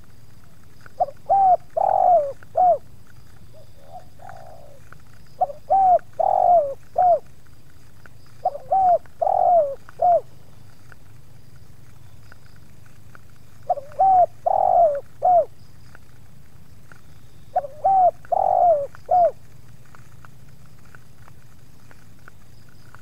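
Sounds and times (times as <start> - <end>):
dove cooing: 0.5 - 11.2, 13.4 - 15.6, 16.9 - 20.1.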